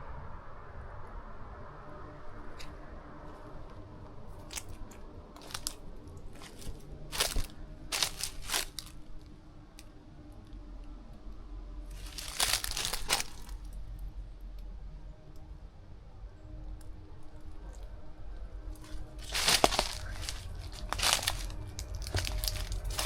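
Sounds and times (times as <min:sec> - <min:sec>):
footsteps crunching on rough ground: 0:04.4 - 0:09.0, 0:11.9 - 0:13.7, 0:18.8 - 0:23.0.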